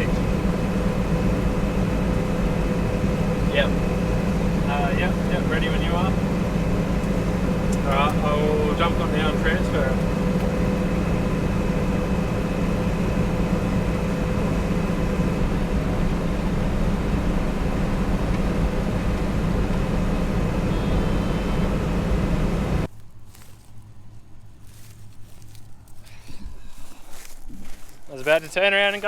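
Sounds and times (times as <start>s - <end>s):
steady whine: 0.0s - 22.9s
diesel engine droning under load: 0.0s - 29.0s.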